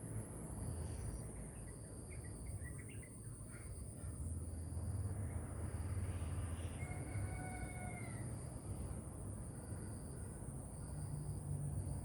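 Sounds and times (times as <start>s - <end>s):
insect trill: 4.5s - 12.0s.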